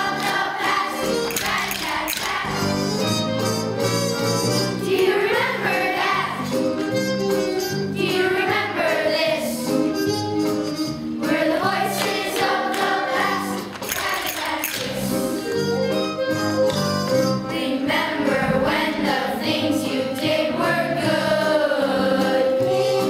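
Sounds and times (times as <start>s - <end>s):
group of voices singing: 0.0s - 2.8s, 4.8s - 6.5s, 8.0s - 9.7s, 11.2s - 15.3s, 17.5s - 23.0s
low musical accompaniment: 0.0s - 23.0s.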